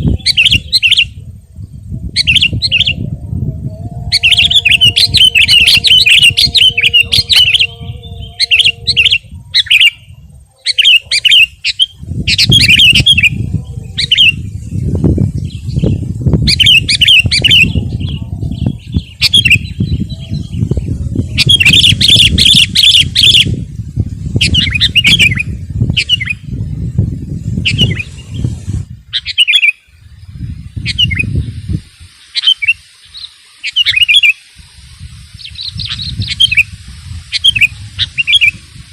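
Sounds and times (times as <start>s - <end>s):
bulbul warbling song: 0.0s - 26.7s, 27.4s - 31.5s, 32.3s - 34.5s, 35.3s - 38.7s
low rumble: 1.1s - 10.5s.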